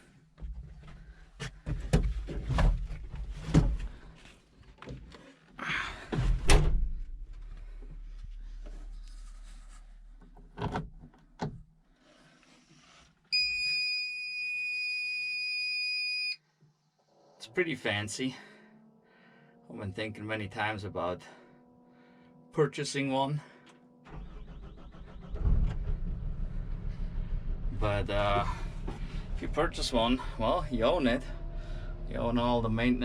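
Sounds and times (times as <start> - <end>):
electronic warning beep: 13.4 - 16.4.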